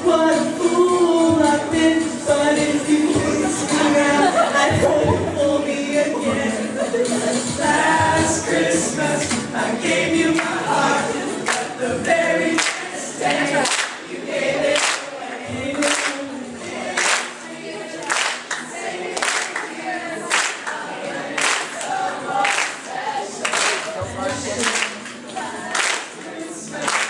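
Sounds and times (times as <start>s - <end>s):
group singing a cappella: 0.0s - 27.0s
sharp hand clap: 12.6s - 14.0s, 14.7s - 15.1s, 15.8s - 16.2s, 17.0s - 17.4s, 18.0s - 19.7s, 20.3s - 20.8s, 21.4s - 22.8s, 23.4s - 24.0s, 24.6s - 27.0s.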